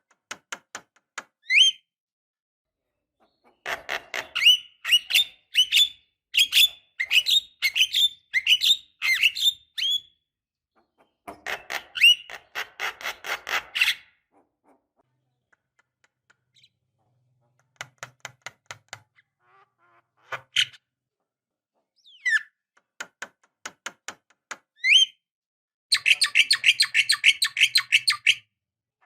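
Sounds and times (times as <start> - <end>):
bird chattering and whistling: 25.9 - 28.4.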